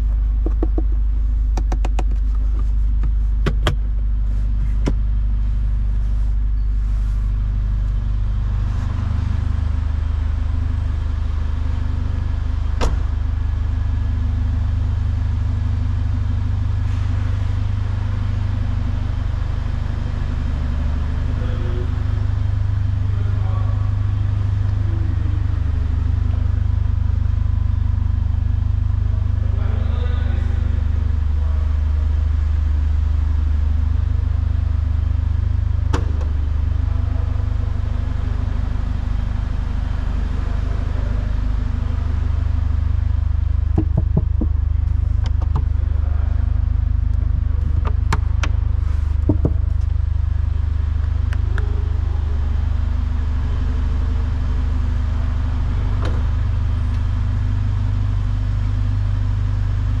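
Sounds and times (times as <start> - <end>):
car engine idling: 0.0 - 60.0
sharp clicks and knocks: 0.4 - 3.9, 4.6 - 5.1, 43.8 - 45.7.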